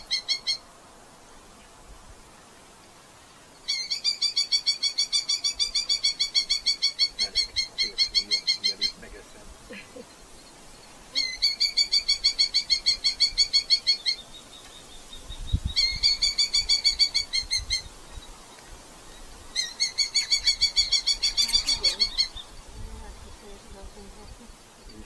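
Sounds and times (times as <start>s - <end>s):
falcon chattering call: 3.7s - 9.2s, 19.6s - 22.4s.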